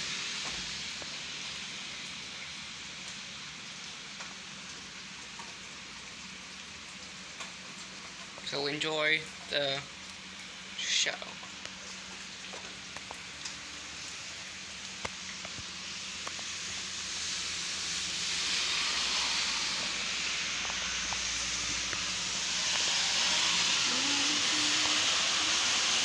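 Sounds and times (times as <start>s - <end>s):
heavy rain pouring: 0.0s - 26.0s
water drips ticking: 0.4s - 19.1s, 19.7s - 26.0s.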